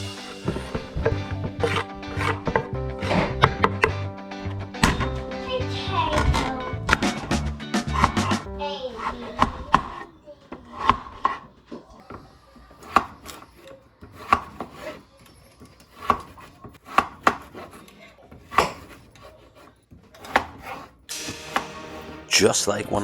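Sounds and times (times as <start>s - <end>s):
knife chopping on cutting board: 0.3s - 4.0s, 6.9s - 10.0s, 12.8s - 13.4s, 14.1s - 15.0s, 15.9s - 17.8s, 18.4s - 19.0s.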